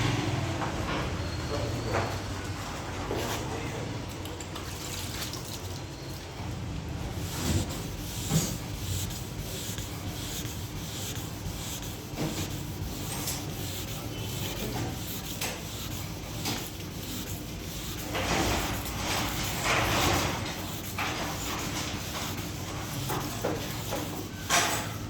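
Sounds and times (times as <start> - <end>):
sandpaper rubbing on car paint: 7.1 - 25.0.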